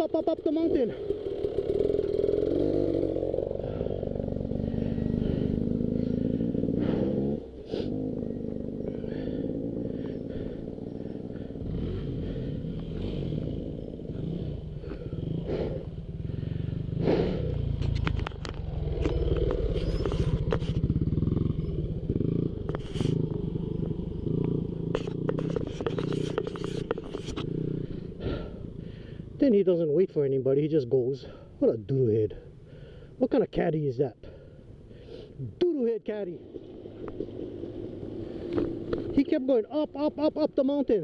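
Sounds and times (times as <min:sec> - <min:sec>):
dirt bike engine revving: 0:00.0 - 0:29.4.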